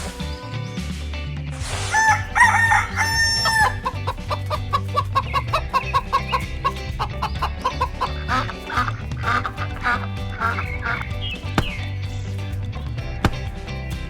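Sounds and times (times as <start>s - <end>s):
rooster crowing: 1.9s - 4.0s
hen clucking: 2.0s - 11.8s.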